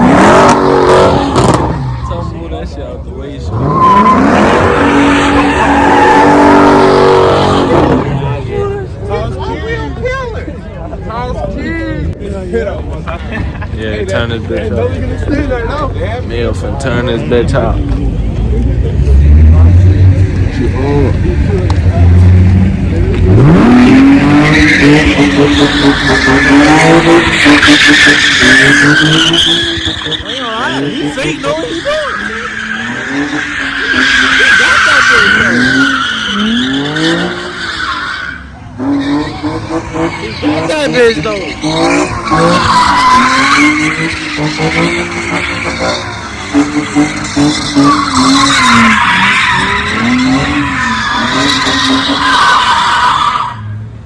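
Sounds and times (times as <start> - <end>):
car engine revving: 0.0 - 9.7, 14.1 - 54.0
tyres screeching: 3.5 - 8.3, 19.1 - 53.8.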